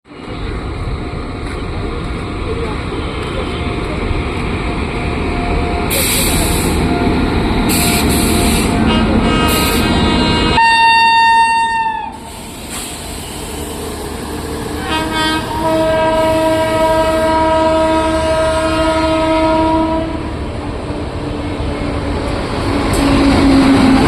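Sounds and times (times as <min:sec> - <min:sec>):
train rumbling: 0:00.1 - 0:24.0
train horn blasts: 0:07.7 - 0:12.2, 0:14.8 - 0:20.4.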